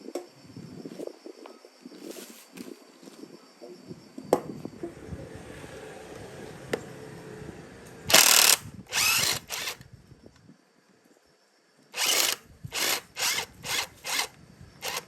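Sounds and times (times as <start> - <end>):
power tool running in bursts: 8.1 - 9.8, 12.0 - 15.0
sharp clicks: 8.1 - 9.8, 12.0 - 15.0.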